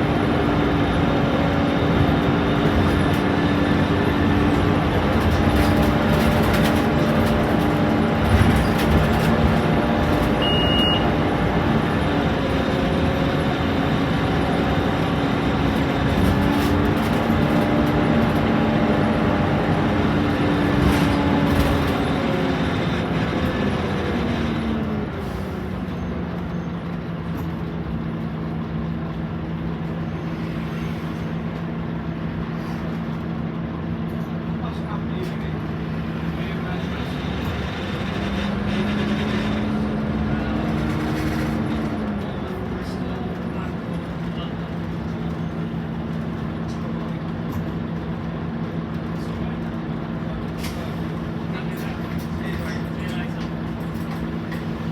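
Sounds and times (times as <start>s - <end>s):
bus diesel engine running: 0.0s - 54.9s
short electronic beep: 10.4s - 11.1s.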